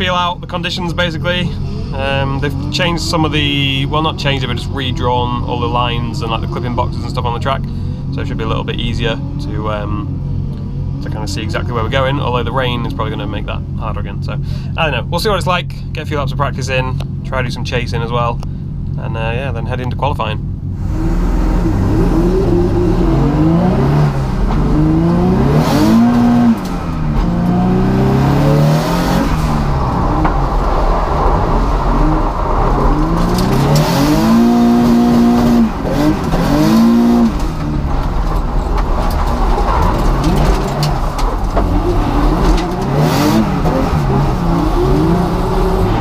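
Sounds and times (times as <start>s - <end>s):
car engine revving hard: 20.8s - 46.0s.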